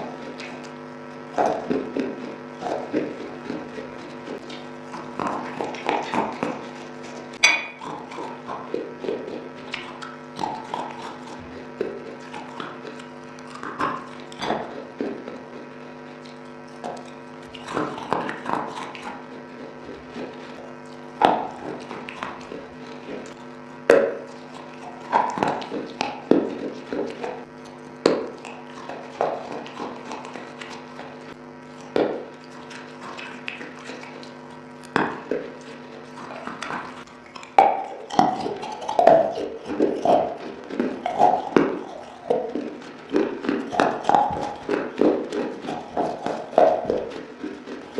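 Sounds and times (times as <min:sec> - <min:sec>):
crunchy chewing: 0:00.0 - 0:47.9.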